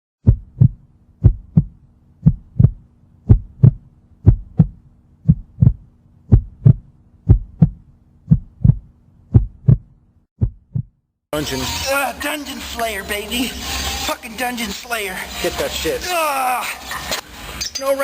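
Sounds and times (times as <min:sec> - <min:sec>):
heartbeat thumps: 0:00.2 - 0:11.0.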